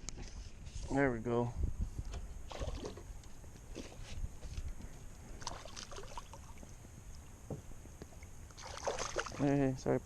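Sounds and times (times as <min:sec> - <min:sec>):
water sloshing around a kayak: 0:02.4 - 0:09.7.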